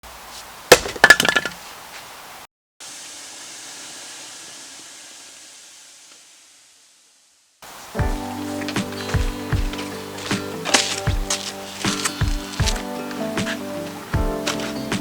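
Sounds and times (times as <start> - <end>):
steady hiss: 1.6 - 15.0.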